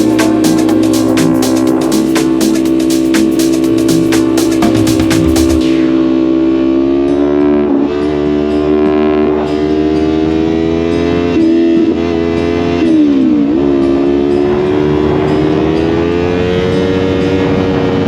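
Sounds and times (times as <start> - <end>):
music with a beat: 0.0 - 6.0
motorcycle engine running: 0.0 - 10.0, 11.2 - 18.0.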